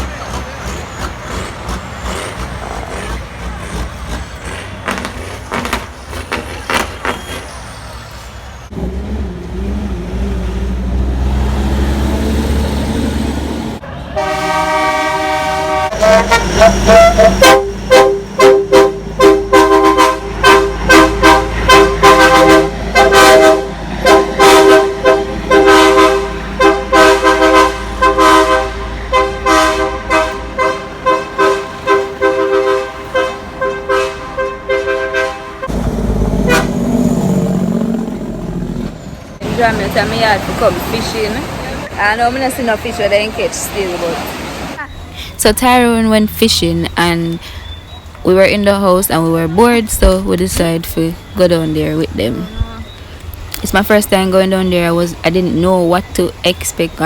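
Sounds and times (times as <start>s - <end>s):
truck horns blasting: 0.0s - 8.0s, 13.7s - 41.4s.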